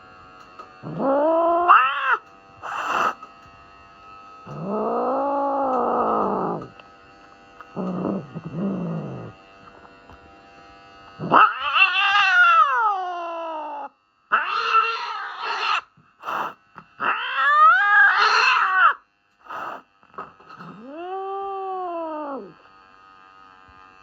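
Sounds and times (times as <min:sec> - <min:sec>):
cat yowling: 0:00.8 - 0:03.2, 0:04.5 - 0:06.7, 0:11.2 - 0:19.8, 0:20.8 - 0:22.6.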